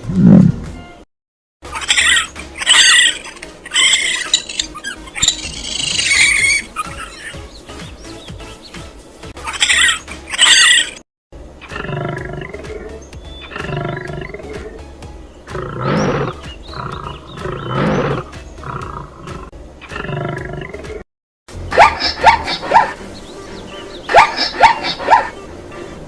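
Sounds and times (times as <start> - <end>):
background music: 0.0 - 1.0, 1.6 - 26.0
shrill bird squawks: 1.8 - 7.5, 9.4 - 11.0, 21.8 - 23.0, 23.6 - 25.4
lion roaring: 11.7 - 12.8, 13.5 - 14.8, 15.5 - 20.9.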